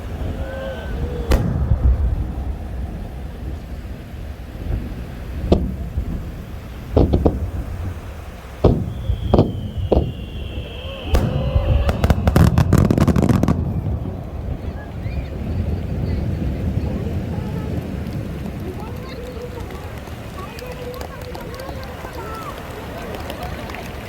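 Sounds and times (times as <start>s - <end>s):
firework whistle: 0.0s - 4.6s, 6.6s - 16.3s
firework booms: 0.0s - 18.9s
crackling firework reports: 0.0s - 24.0s.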